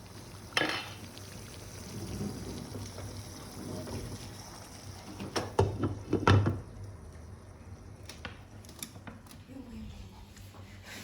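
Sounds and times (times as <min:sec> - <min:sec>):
kitchen utensils and dishes clattering: 0:00.6 - 0:01.0.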